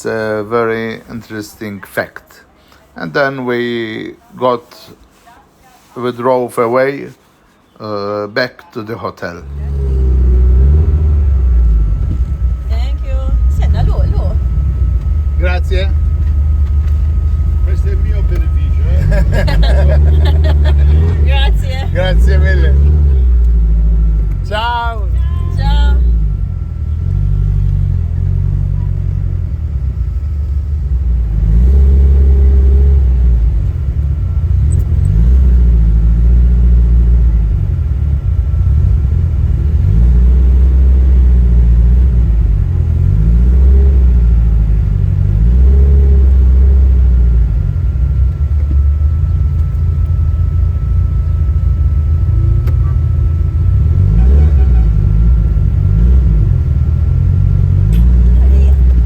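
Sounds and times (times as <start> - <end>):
car engine accelerating: 9.2 - 59.0
faint high whine: 9.3 - 42.9, 46.1 - 59.0.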